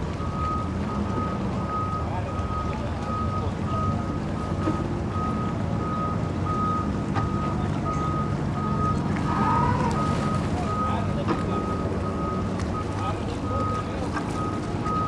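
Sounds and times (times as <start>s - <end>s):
reversing alarm beeping: 5.1s - 15.0s
engines humming: 7.7s - 15.0s.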